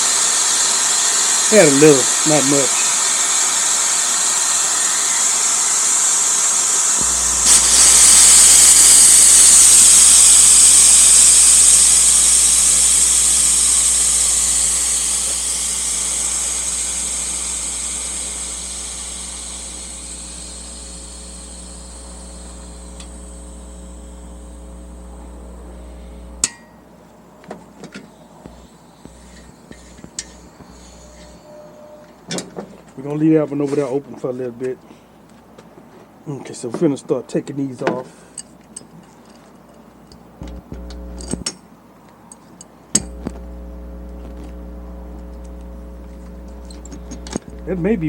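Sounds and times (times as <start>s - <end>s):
compressed air hissing: 0.0s - 26.5s.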